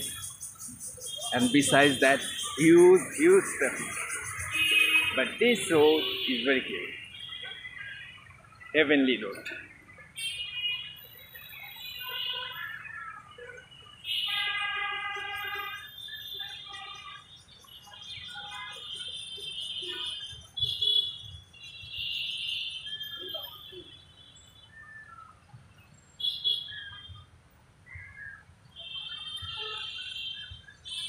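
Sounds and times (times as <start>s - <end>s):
birds chirping and calling: 0.0s - 13.4s.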